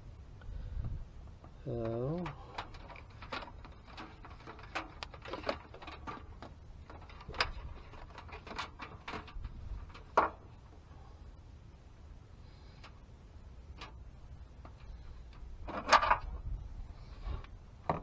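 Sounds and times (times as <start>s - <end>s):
light clicks and knocks: 1.2s - 10.7s.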